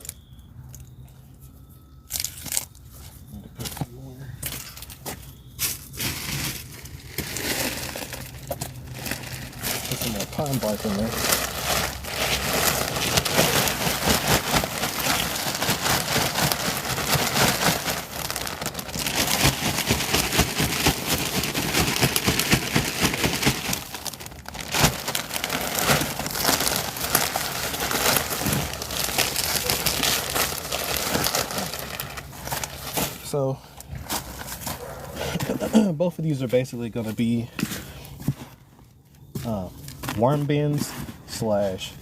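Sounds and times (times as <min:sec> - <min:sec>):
bark mulch crackling rustle: 0:05.6 - 0:35.0.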